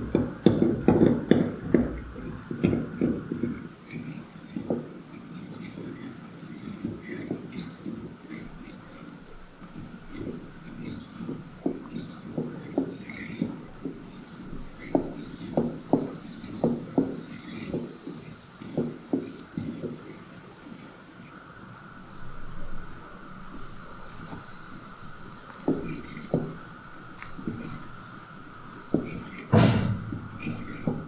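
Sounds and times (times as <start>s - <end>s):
faint steady hum: 8.3s - 31.0s
dull kitchen knocks: 28.6s - 31.0s.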